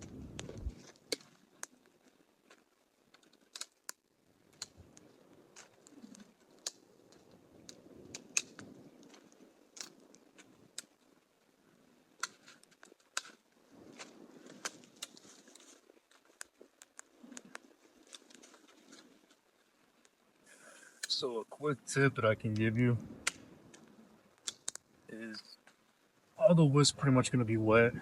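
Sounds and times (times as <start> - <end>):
faint low rumble: 0.0 - 3.1
campfire crackling: 0.0 - 28.0.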